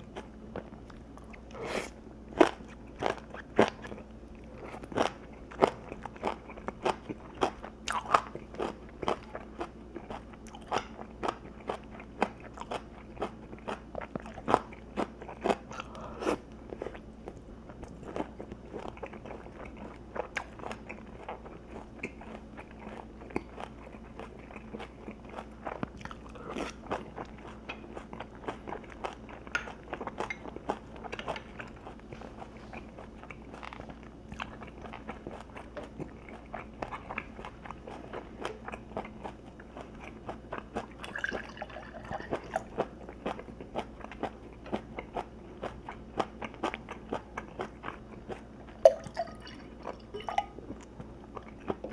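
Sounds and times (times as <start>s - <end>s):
person chewing crunchy food: 0.0s - 51.9s.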